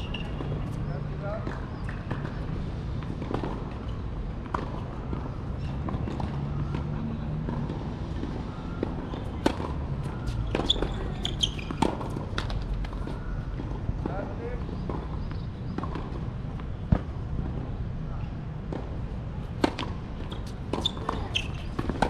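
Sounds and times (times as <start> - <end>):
tennis balls struck by rackets: 0.1 - 17.7, 18.6 - 22.0.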